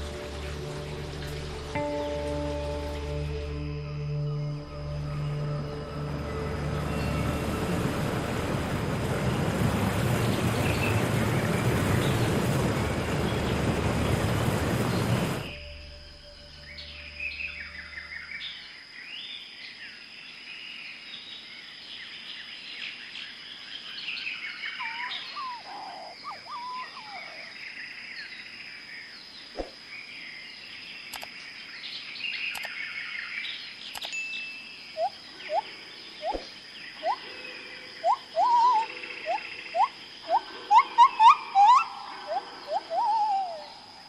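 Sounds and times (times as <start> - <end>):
birds chirping: 24.1 - 28.4, 30.1 - 44.0
gliding bird whistles: 35.0 - 37.2, 38.0 - 43.8.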